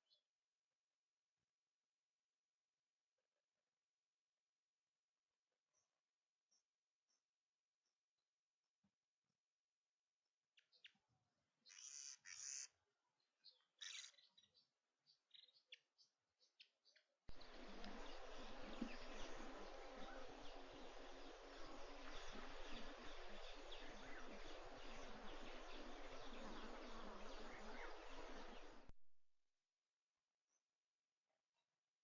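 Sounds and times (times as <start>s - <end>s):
short bird calls: 11.7s - 12.7s, 13.8s - 14.3s
dense continuous bird chatter: 13.4s - 15.8s, 16.8s - 28.9s
low electrical hum: 17.3s - 28.9s.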